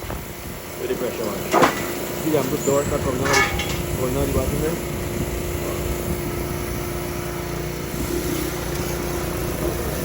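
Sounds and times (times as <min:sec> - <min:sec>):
pressure washer engine running: 0:00.0 - 0:10.0.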